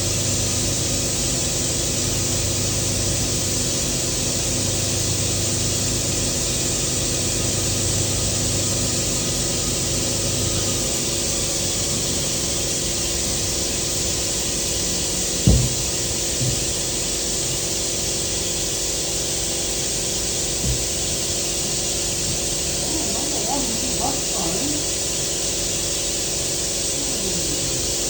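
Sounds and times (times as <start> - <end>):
electrical hum: 0.0 - 28.0
knock: 15.4 - 16.7, 20.6 - 21.0.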